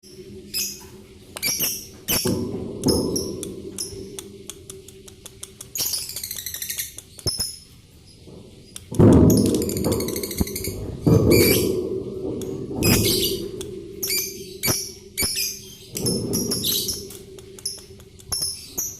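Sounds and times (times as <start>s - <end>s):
lovebirds chirping: 0.0s - 11.8s, 12.8s - 18.9s
low-pitched noise bursts: 8.3s - 18.8s.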